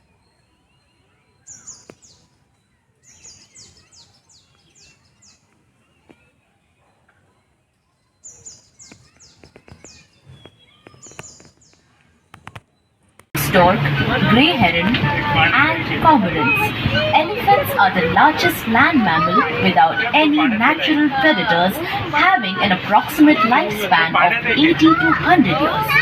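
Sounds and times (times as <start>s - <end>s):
birds chirping: 0.0s - 26.0s
faint clicks: 8.8s - 13.4s.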